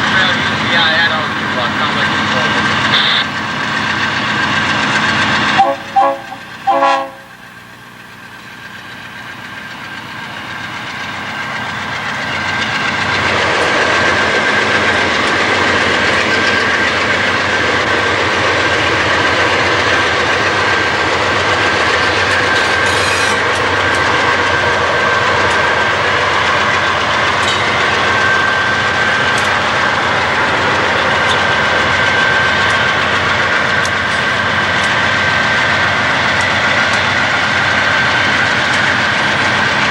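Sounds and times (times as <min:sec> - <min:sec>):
train wheels rumbling on rails: 0:00.0 - 0:39.9
high-pitched ringing tone: 0:02.9 - 0:03.2.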